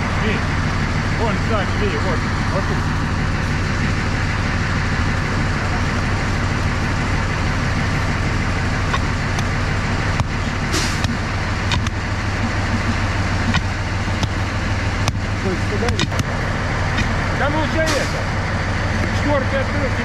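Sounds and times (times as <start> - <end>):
diesel locomotive idling: 0.0 - 20.0
sharp clicks: 8.8 - 16.3.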